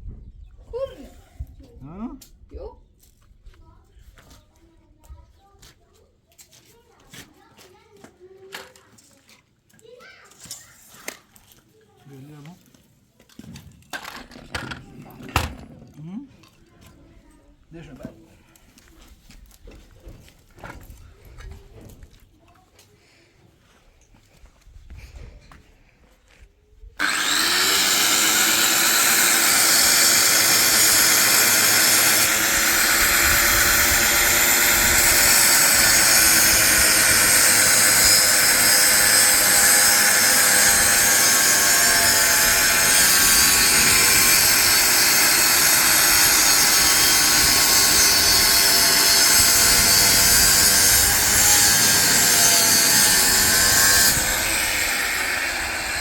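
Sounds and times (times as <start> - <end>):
power tool motor whining: 27.0 - 56.0.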